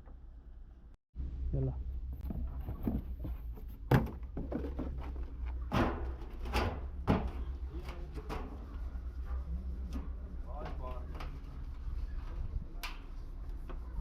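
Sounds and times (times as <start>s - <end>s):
knocks and thuds: 2.2s - 7.5s.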